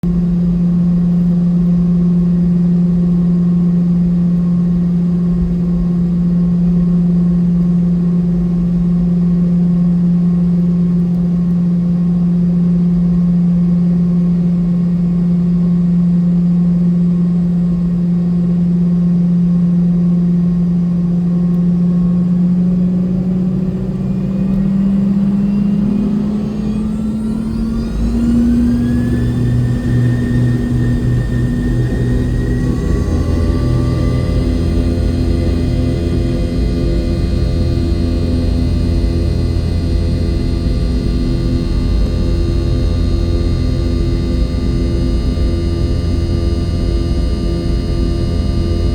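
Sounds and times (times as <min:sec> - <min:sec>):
engine whine spooling up: 0:00.0 - 0:48.9
jet engines humming in cabin: 0:00.0 - 0:48.9.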